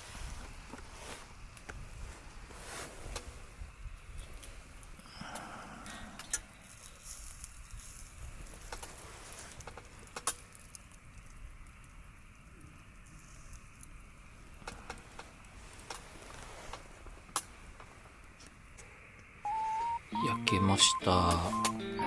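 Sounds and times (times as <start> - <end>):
campfire crackling: 0.0 - 22.0
faint steady hiss: 0.0 - 22.0
sharp fire pops: 7.2 - 19.3.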